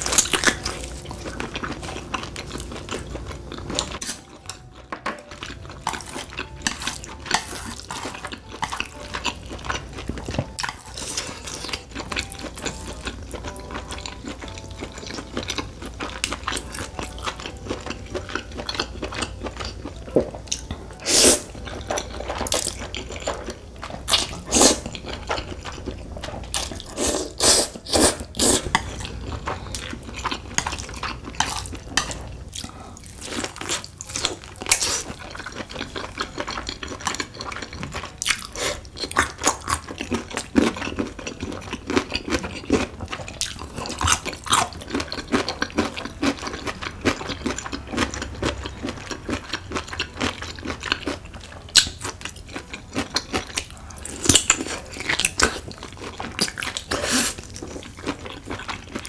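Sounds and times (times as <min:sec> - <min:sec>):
wet chewing and slurping noodles: 0:00.0 - 0:59.0.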